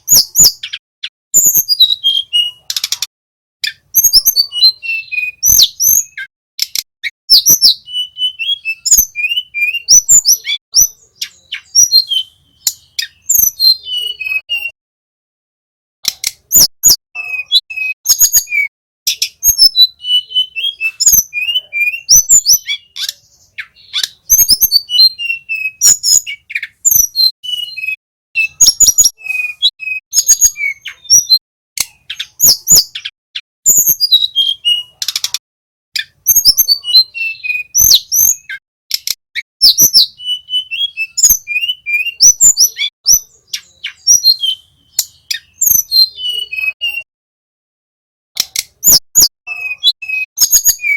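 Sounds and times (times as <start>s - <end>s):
flycatcher singing: 3.6s - 14.8s, 16.4s - 35.1s, 36.0s - 47.1s
sharp clicks: 6.6s - 6.9s, 16.0s - 16.5s, 35.0s - 35.4s, 38.9s - 39.2s, 48.4s - 48.8s.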